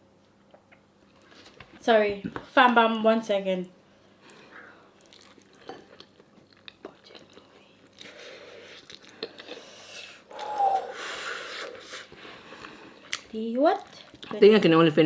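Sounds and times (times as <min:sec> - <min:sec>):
person chewing food: 0:04.2 - 0:14.3.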